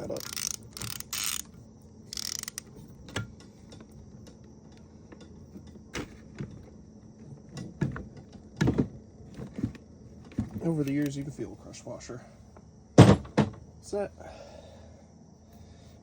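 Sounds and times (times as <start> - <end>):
tool rattling burst: 0.0 - 1.5, 2.1 - 2.7
metallic clicks and knocks: 10.6 - 11.3.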